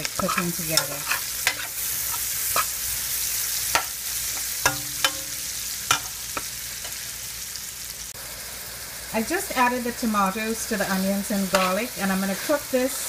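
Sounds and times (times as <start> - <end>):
metal spoon scraping a pot: 0.0 - 2.8
onions sizzling in oil: 0.0 - 13.0.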